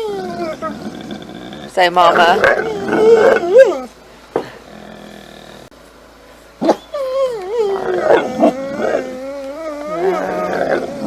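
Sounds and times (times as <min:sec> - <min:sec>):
dog howling and warbling: 0:00.0 - 0:01.2, 0:02.0 - 0:03.9, 0:06.6 - 0:11.0.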